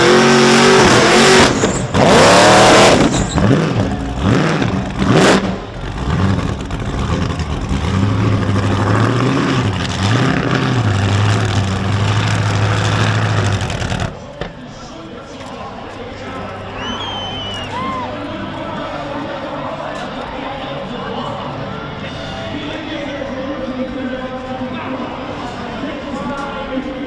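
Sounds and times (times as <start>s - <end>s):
car engine revving hard: 0.0s - 14.2s.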